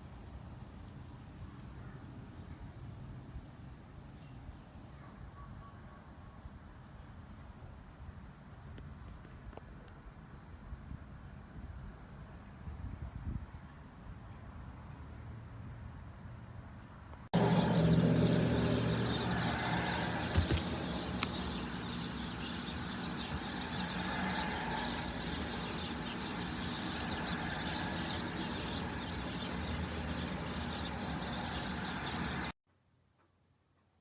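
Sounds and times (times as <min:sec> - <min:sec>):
car engine running: 0:17.4 - 0:21.5.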